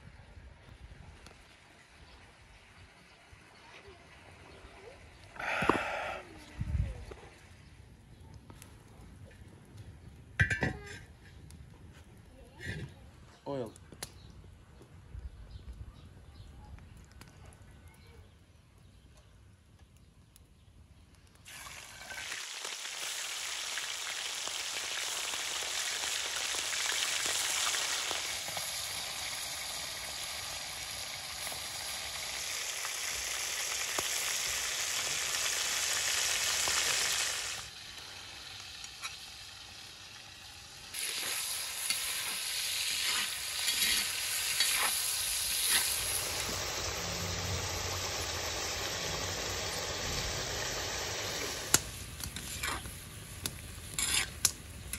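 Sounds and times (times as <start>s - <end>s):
meat sizzling in hot oil: 21.5s - 54.9s.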